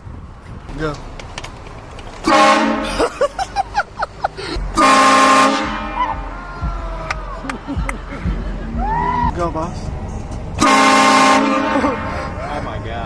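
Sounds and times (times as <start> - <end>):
prank car horn blasts: 2.2 - 3.1, 4.7 - 6.8, 10.6 - 12.3.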